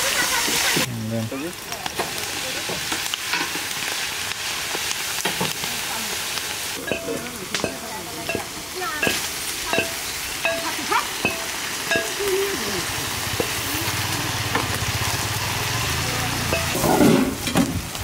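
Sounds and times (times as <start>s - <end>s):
food sizzling in hot oil: 0.0s - 18.0s
metal spatula scraping pan: 16.4s - 17.7s.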